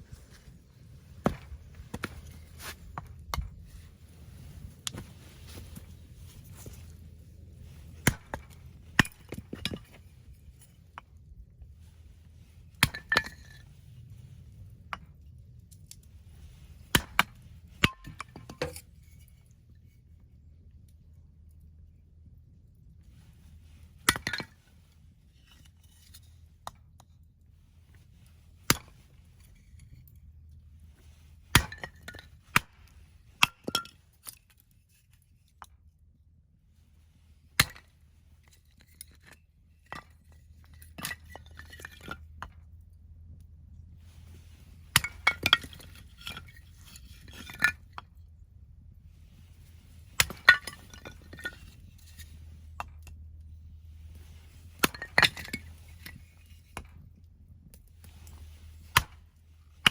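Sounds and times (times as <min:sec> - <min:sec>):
axe splitting firewood: 0:01.2 - 0:03.6, 0:07.8 - 0:10.0, 0:12.8 - 0:13.6, 0:16.8 - 0:18.9, 0:28.7 - 0:29.7, 0:31.5 - 0:34.4, 0:37.6 - 0:37.9, 0:44.6 - 0:47.9, 0:49.8 - 0:53.2, 0:54.0 - 0:57.1, 0:58.0 - 0:59.9
split wood pieces clattering: 0:50.2 - 0:52.4.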